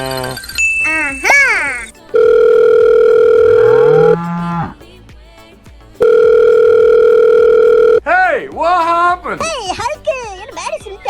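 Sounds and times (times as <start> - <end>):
telephone ringback tone: 2.2 - 4.2, 6.0 - 8.0
rising moo-like call: 3.2 - 4.8.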